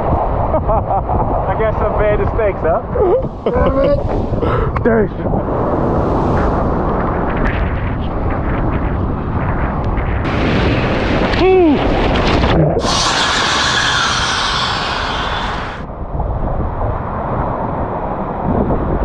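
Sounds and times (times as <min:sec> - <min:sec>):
wind buffeting microphone: 0:00.0 - 0:19.0
short vocal cry: 0:12.8 - 0:15.8.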